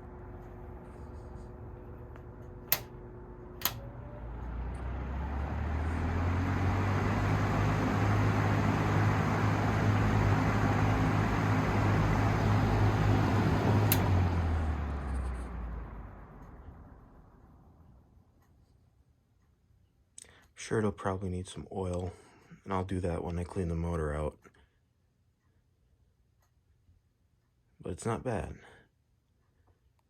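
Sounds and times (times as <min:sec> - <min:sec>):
fan humming and rushing air: 0:00.0 - 0:16.3
fan switch clicks: 0:02.2 - 0:03.9, 0:13.6 - 0:14.3.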